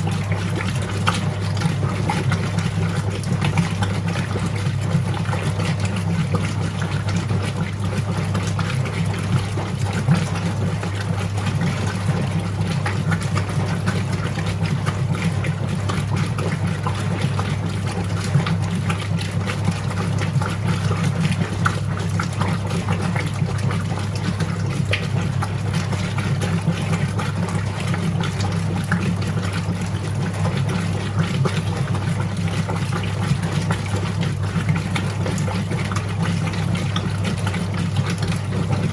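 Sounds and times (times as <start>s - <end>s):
washing machine motor hum: 0.0s - 38.9s
water churning in tub: 0.0s - 38.9s.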